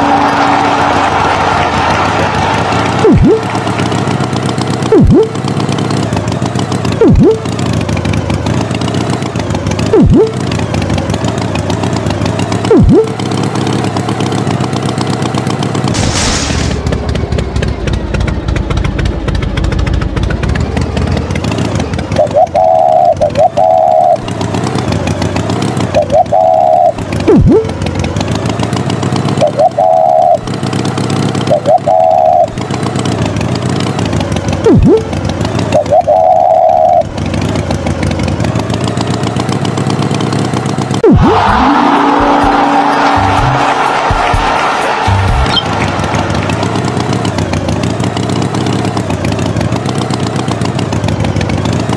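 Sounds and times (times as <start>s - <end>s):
engine running: 0.0s - 51.9s
short high tones: 7.0s - 7.4s, 10.0s - 10.4s
quick falling swoops: 15.9s - 17.0s.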